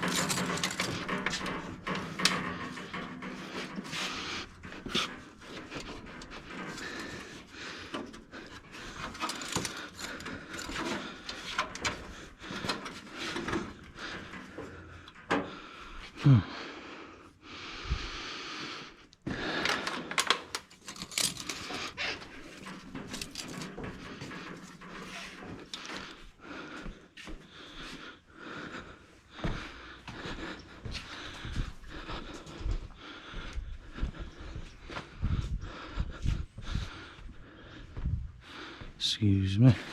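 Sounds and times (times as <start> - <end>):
hand tools and metal clinking: 0.0 - 15.6, 19.5 - 26.2.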